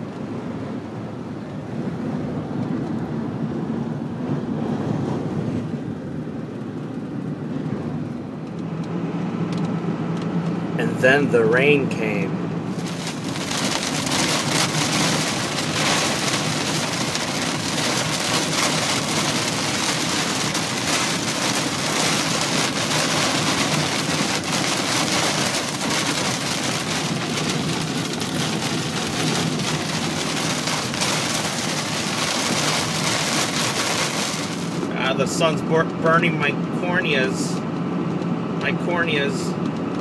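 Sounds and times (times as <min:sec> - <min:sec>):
heavy rain on windshield and roof: 0:10.8 - 0:37.5.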